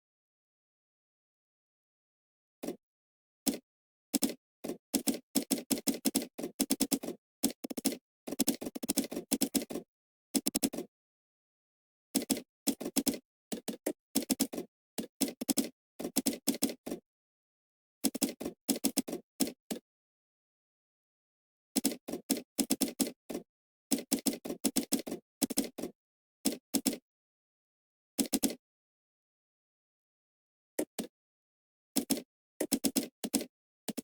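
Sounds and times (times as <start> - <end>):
computer keyboard typing: 5.0 - 9.8, 32.0 - 34.0.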